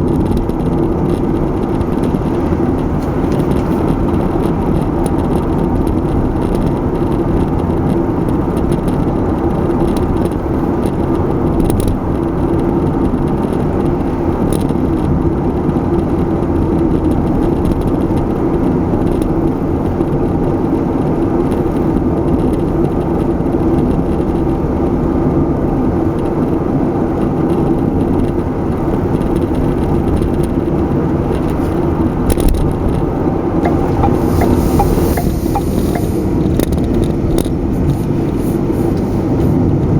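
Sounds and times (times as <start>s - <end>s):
car road and engine noise: 0.0s - 39.9s.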